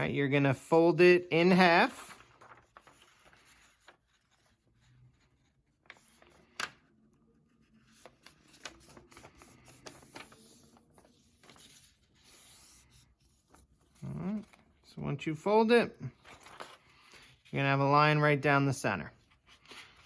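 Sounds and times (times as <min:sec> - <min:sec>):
paper rustling and crinkling: 0:01.5 - 0:14.8, 0:16.1 - 0:17.6, 0:19.2 - 0:20.0.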